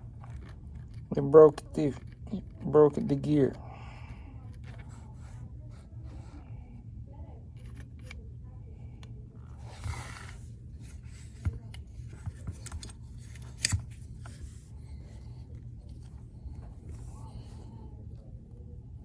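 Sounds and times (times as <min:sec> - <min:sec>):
steady low hum: 0:00.0 - 0:19.0
plastic scrape: 0:09.4 - 0:17.8.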